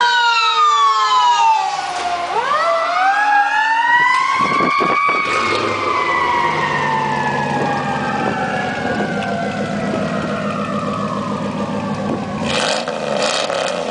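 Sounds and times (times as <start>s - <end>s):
siren wailing: 0.0s - 12.9s
low engine rumble: 4.4s - 12.6s.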